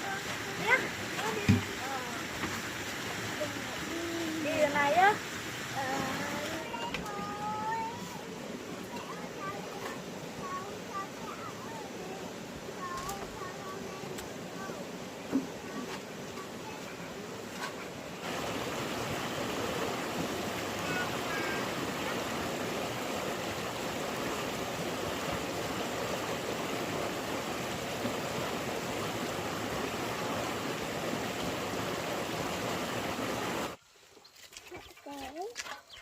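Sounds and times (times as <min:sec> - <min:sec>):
flowing water rushing: 0:00.0 - 0:36.0.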